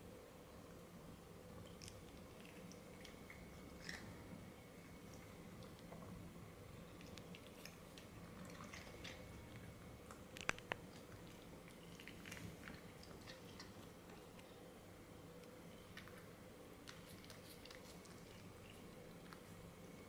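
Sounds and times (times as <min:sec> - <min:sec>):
cat crunching treats: 0:15.8 - 0:19.5.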